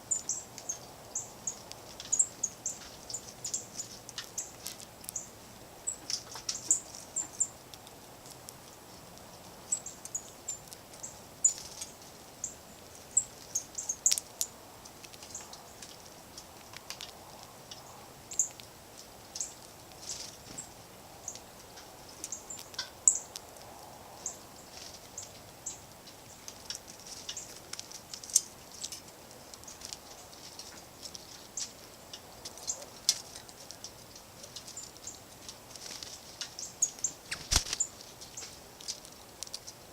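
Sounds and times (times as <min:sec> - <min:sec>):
songbirds chirping: 0:00.0 - 0:39.9
sharp clicks: 0:37.3 - 0:37.9.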